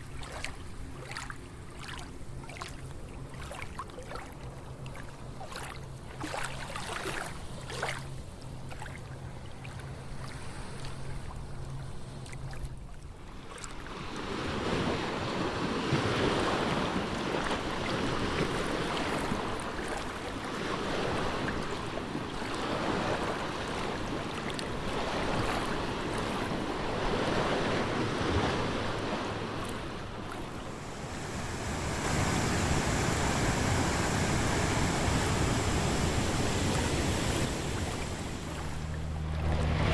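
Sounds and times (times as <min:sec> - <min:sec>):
rushing water: 0:16.5 - 0:39.9.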